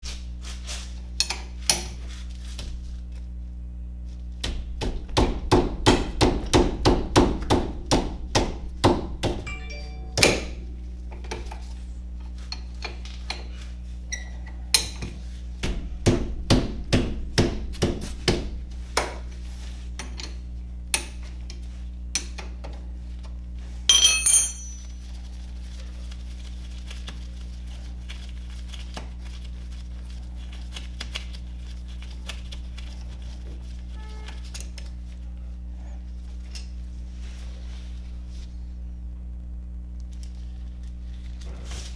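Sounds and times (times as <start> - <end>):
steady low hum: 0.0 - 22.2
hand tools clanking on metal: 23.9 - 25.0.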